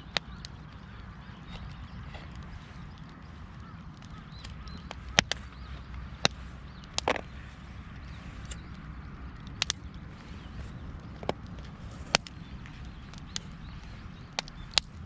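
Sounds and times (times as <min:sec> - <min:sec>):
low steady rumble: 0:00.0 - 0:15.0
sharp clicks and knocks: 0:04.0 - 0:07.4, 0:11.0 - 0:13.5.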